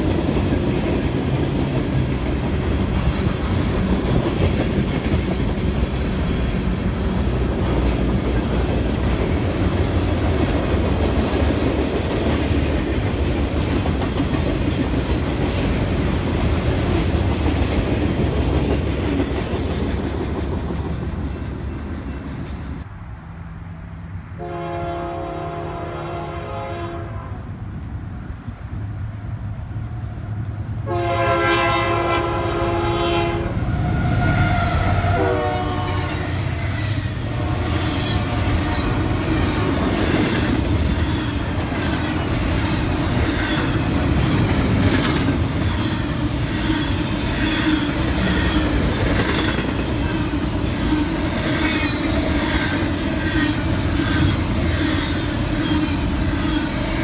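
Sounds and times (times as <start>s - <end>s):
locomotive horn blasts: 24.4s - 27.5s, 30.8s - 36.4s, 37.2s - 39.0s.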